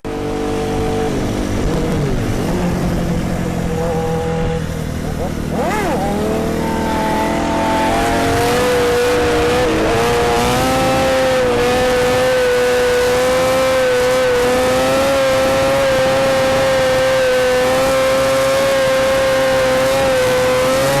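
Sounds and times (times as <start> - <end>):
engine at high revs: 0.0 - 21.0.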